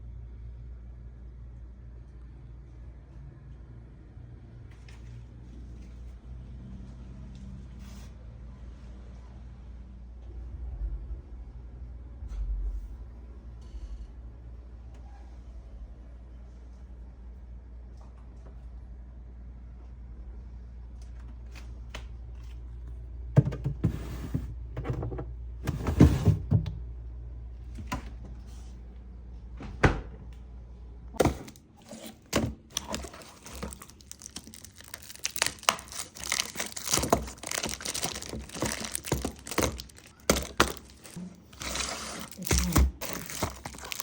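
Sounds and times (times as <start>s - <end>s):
low steady hum: 8.5s - 44.0s
groceries knocking as set down: 31.2s - 44.0s
plastic crinkling and rustling: 31.2s - 44.0s.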